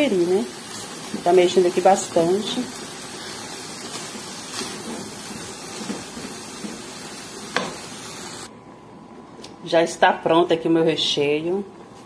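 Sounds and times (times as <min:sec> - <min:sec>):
chicken sizzling in oil: 0:00.0 - 0:08.5.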